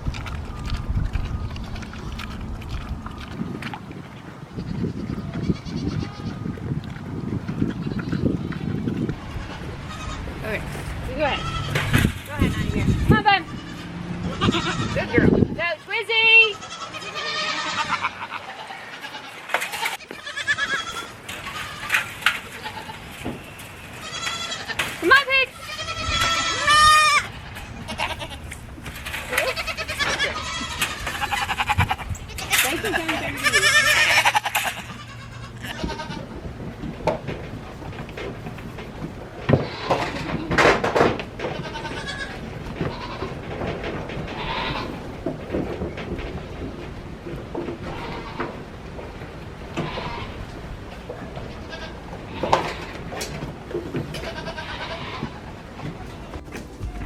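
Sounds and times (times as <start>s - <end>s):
goat bleating: 4.5s - 6.5s, 9.2s - 23.1s, 23.9s - 36.4s, 39.5s - 40.7s, 41.4s - 43.4s, 44.3s - 45.1s, 47.8s - 48.6s, 49.7s - 50.6s, 51.3s - 53.2s, 54.0s - 57.0s
knocks and clatters: 36.4s - 50.0s.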